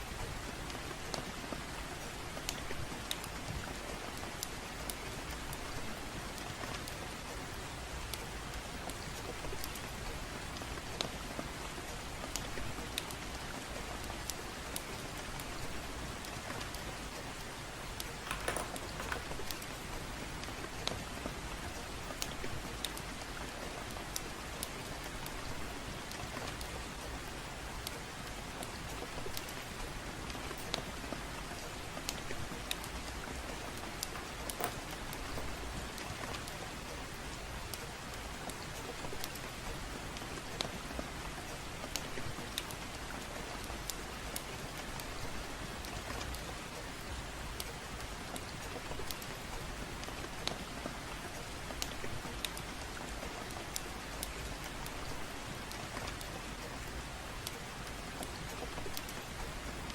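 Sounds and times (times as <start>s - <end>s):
gentle rain: 0.0s - 59.9s
wood fire crackling: 0.6s - 45.2s.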